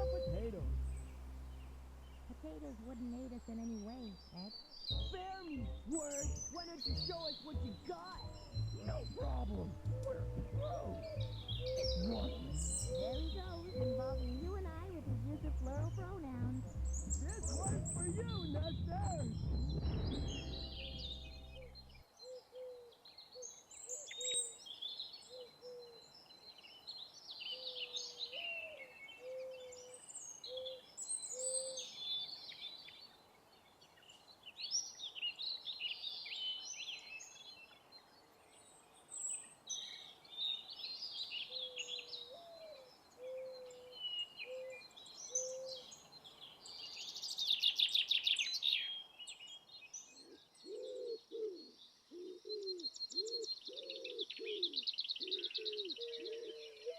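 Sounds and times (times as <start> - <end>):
songbirds chirping: 0.0 - 56.9
loud buzzy bird trill: 4.9 - 14.7
dove cooing: 8.8 - 15.0, 50.3 - 56.9.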